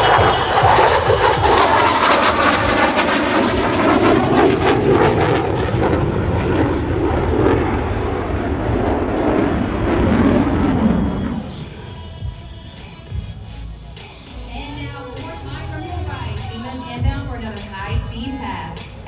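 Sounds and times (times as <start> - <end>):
fighter jet engine roaring: 0.0 - 19.0.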